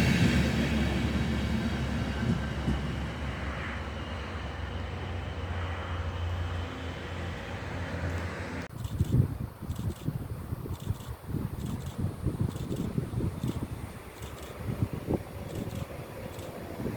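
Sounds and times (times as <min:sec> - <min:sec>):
train rumbling on rails: 0:00.0 - 0:16.9.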